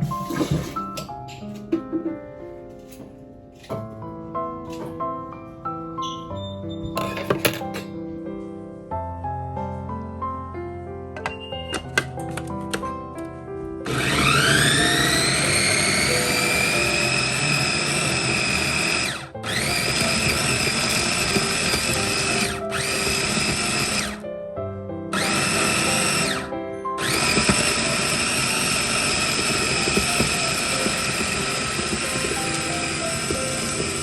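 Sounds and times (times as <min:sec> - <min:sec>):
background music: 0:00.0 - 0:34.0
small electric motor whining: 0:13.9 - 0:24.2, 0:25.1 - 0:34.0.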